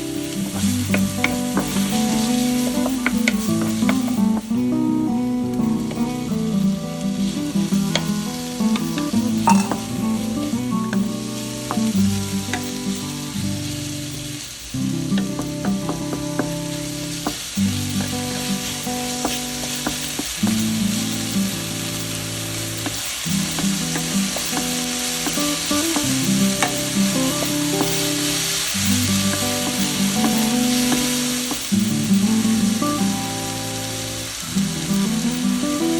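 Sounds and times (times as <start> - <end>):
food sizzling in frying pan: 0.0 - 35.9.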